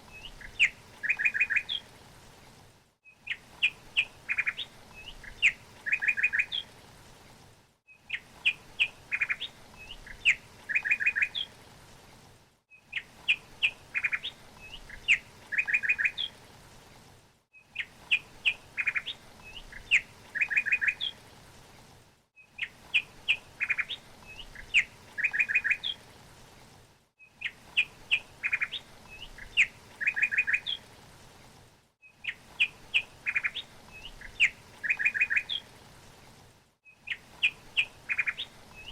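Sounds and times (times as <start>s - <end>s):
songbird singing: 0.0s - 1.9s, 3.0s - 6.7s, 7.9s - 11.5s, 12.7s - 16.4s, 17.6s - 21.2s, 22.4s - 26.0s, 27.2s - 30.8s, 32.0s - 35.7s, 36.8s - 38.9s.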